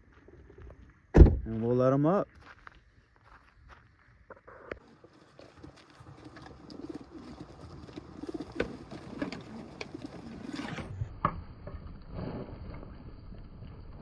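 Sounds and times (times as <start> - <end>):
pigeons cooing: 4.9 - 10.7.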